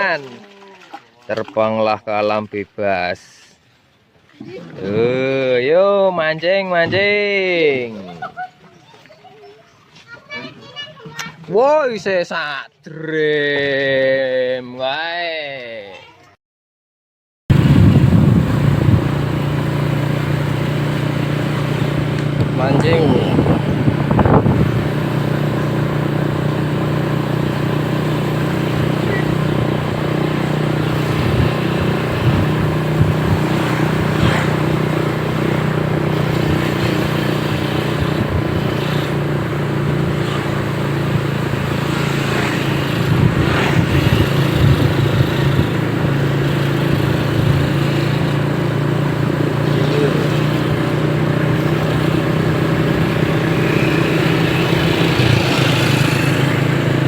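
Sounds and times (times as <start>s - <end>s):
motorcycle engine running: 17.5s - 57.0s.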